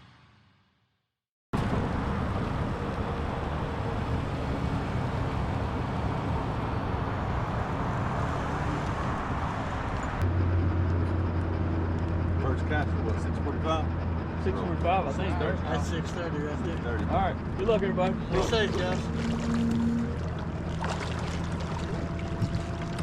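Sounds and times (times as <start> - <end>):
vehicle noise: 1.6 - 23.0
low steady hum: 14.2 - 23.0.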